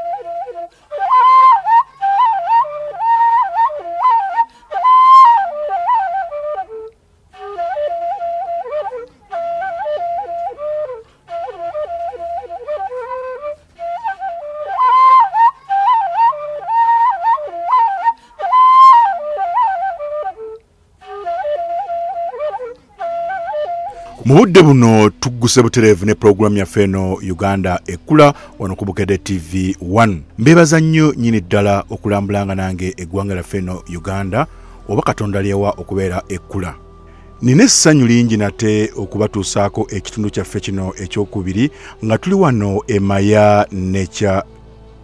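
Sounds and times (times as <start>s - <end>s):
ornamented wind instrument melody: 0.0s - 45.0s.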